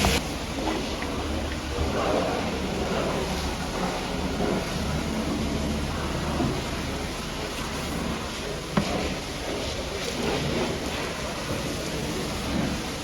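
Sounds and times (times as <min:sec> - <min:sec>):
high-pressure water spray hissing: 0:00.0 - 0:13.0.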